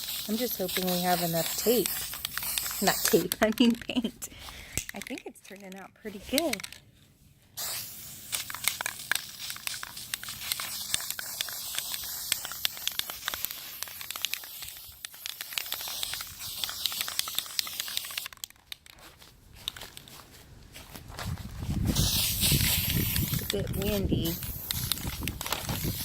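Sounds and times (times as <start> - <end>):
spray paint can hissing: 0.0 - 4.1, 6.2 - 6.8, 7.6 - 18.8, 21.8 - 26.0.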